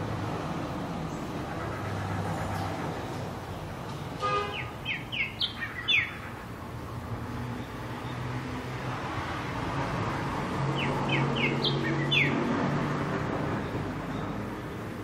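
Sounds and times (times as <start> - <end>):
distant traffic hum: 0.0 - 15.0
bird chirping: 4.4 - 6.4, 10.6 - 12.5, 13.5 - 15.0.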